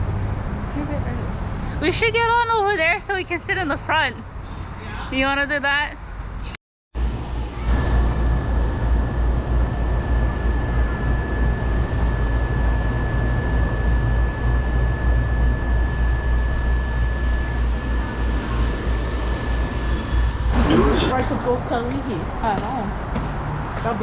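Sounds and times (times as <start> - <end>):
thin high whine: 7.0 - 22.1
metro train rumble: 7.0 - 24.0.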